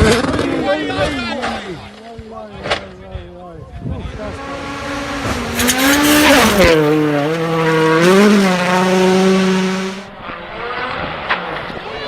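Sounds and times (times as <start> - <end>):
loud rushing noise: 4.0 - 10.1
rally car engine revving: 4.0 - 11.8.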